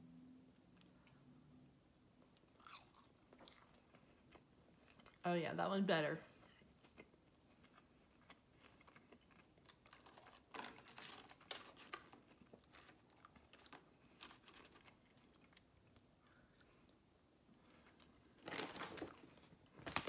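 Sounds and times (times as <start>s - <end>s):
faint chewing: 0.6s - 5.2s, 6.2s - 20.0s
food crackling on paper plate: 8.4s - 15.6s.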